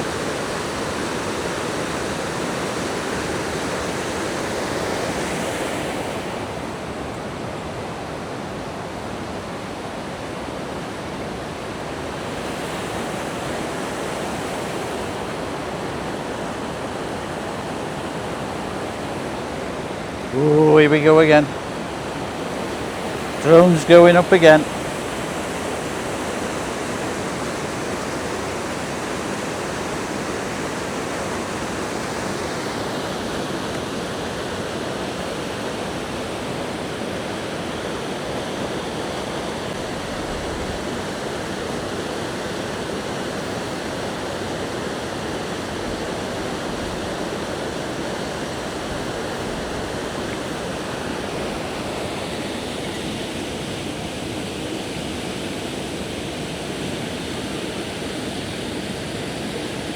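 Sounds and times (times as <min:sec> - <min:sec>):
waterfall rushing: 0:12.1 - 0:39.6.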